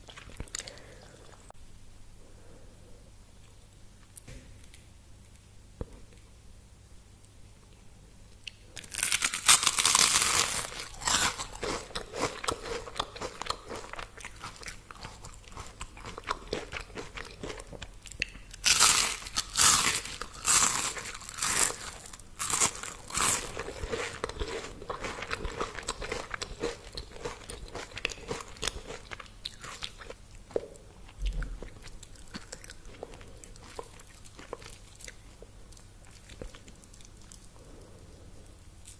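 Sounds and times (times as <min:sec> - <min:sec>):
person chewing: 0:00.0 - 0:01.6, 0:08.4 - 0:38.9
crunchy bites of fried food: 0:08.8 - 0:35.2.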